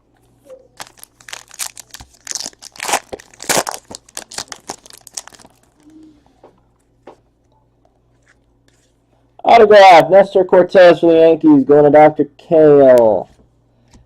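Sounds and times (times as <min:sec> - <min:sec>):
packaging crinkling and tearing: 0:00.7 - 0:05.9.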